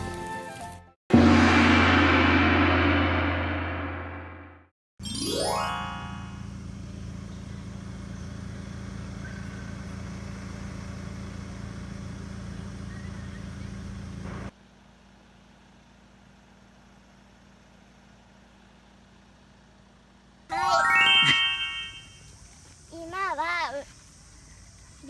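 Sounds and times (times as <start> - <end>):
car engine and road noise: 6.0 - 20.5.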